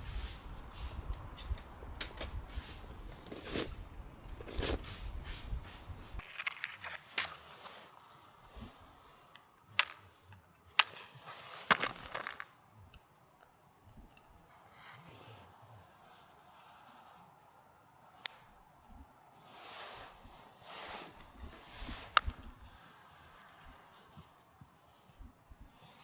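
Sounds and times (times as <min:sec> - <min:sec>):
low background noise: 0:00.0 - 0:26.0
crunches and sharp cracks: 0:06.1 - 0:08.0, 0:09.7 - 0:13.0, 0:21.2 - 0:25.3.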